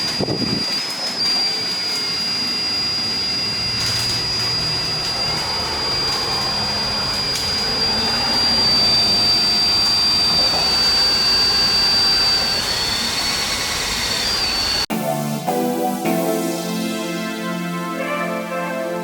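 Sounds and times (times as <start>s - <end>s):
small blower whining: 0.0s - 14.9s
music: 14.9s - 19.0s.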